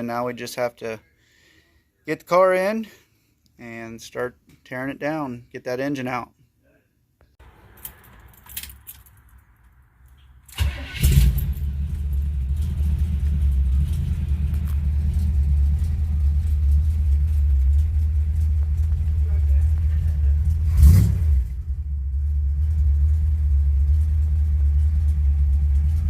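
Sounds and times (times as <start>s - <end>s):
engine starting and idling: 10.2s - 26.0s.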